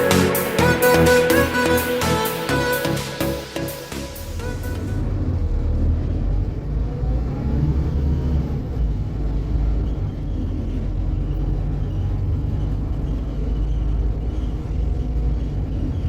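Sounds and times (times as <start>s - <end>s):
bus engine and road rumble: 4.4s - 16.0s.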